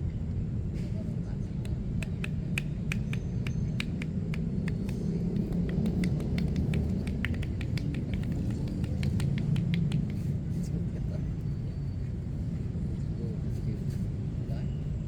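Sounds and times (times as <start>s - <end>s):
street noise rumble: 0.0s - 15.0s
light clicks and pats: 1.6s - 10.5s.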